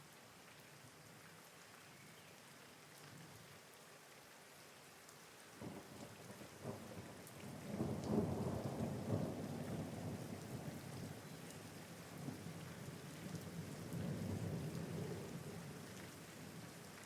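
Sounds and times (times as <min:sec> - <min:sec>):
steady rain: 0:00.0 - 0:17.0
rolling thunder: 0:07.5 - 0:10.8.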